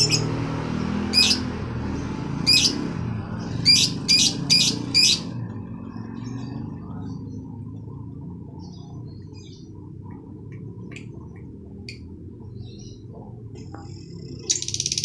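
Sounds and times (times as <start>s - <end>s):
bird squawking: 1.1s - 1.5s, 3.6s - 5.3s
steady low rumble: 2.5s - 14.8s.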